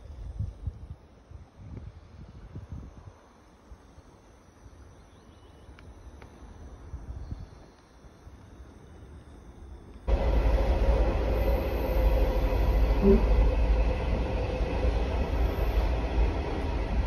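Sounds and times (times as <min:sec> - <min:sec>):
faint steady whine: 0:00.0 - 0:17.0
train rumbling and rattling: 0:10.0 - 0:17.0.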